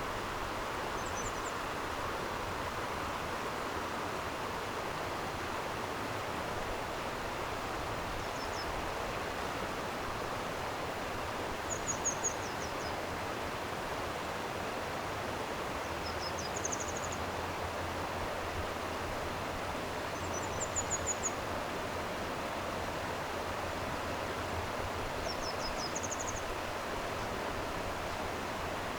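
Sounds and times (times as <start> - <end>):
stream flowing: 0.0 - 28.9
small bird singing: 1.0 - 1.6, 11.7 - 13.0, 16.0 - 17.2, 20.2 - 21.4, 25.2 - 26.5.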